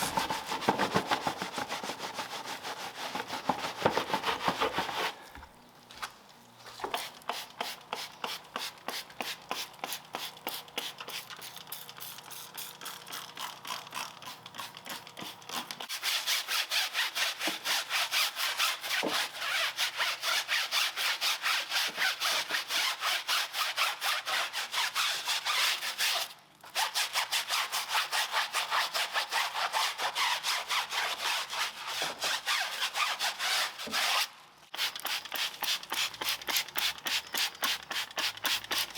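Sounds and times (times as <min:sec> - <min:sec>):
brush scrubbing wheel: 0:00.0 - 0:05.1.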